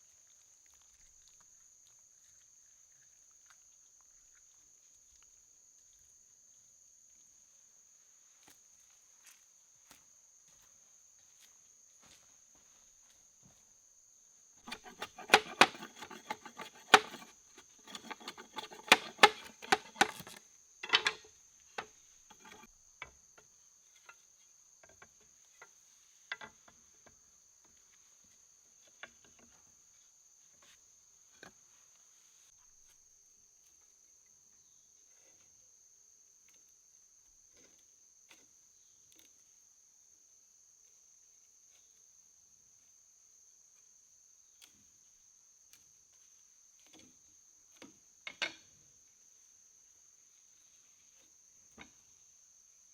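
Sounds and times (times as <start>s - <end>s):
insects trilling: 0.0s - 52.9s
sharp knocks and clatters: 14.6s - 23.1s.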